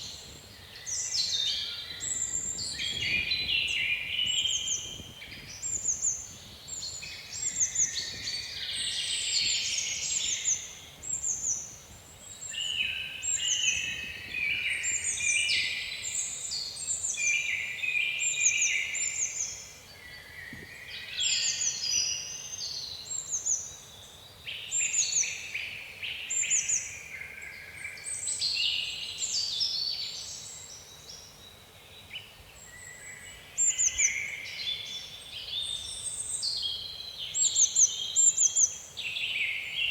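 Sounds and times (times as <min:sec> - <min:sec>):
songbirds chirping and whistling: 0:00.0 - 0:39.9
wind over water: 0:02.0 - 0:08.6.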